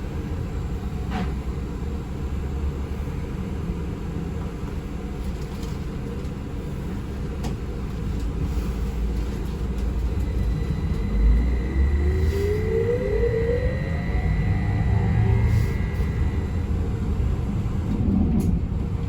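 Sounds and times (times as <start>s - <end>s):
vehicle interior low rumble: 0.0s - 19.0s
rising motor whine: 10.3s - 18.3s.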